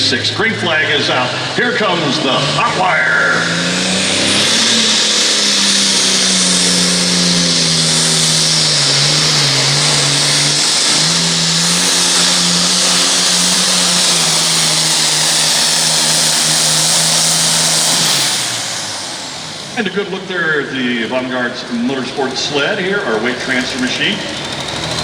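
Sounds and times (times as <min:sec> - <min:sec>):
tractor engine at full throttle: 0:00.0 - 0:25.0.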